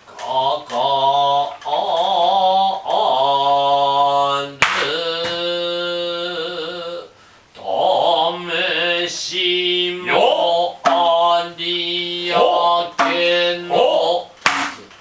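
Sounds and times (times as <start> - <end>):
held vocal calls: 0.0 - 14.4
hand drum strikes: 10.8 - 11.2, 13.0 - 13.6, 14.4 - 14.9.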